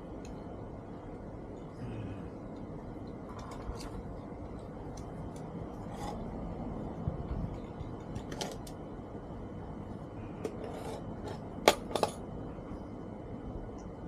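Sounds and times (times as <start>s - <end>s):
low background noise: 0.0s - 14.0s
hard objects clinking and tapping: 10.4s - 12.2s.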